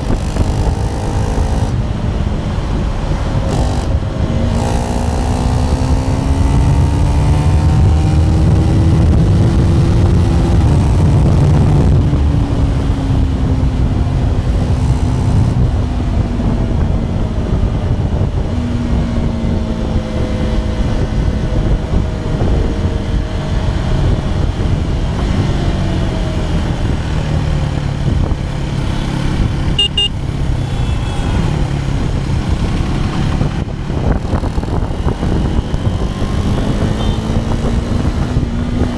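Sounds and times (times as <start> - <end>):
motorcycle engine revving: 0.0 - 38.9
high beep: 29.8 - 31.4.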